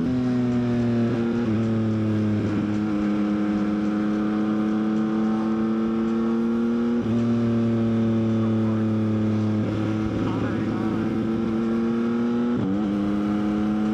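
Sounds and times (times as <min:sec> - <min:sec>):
motorcycle engine accelerating: 0:00.0 - 0:13.9.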